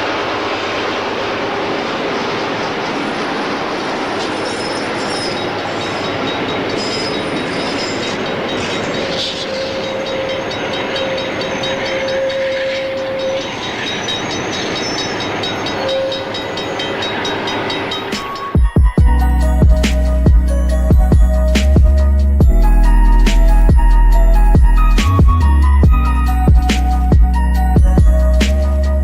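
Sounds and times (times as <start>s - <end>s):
train rumble and clatter: 0.0s - 29.0s
held horn-like tone: 4.1s - 29.0s
music: 15.8s - 29.0s.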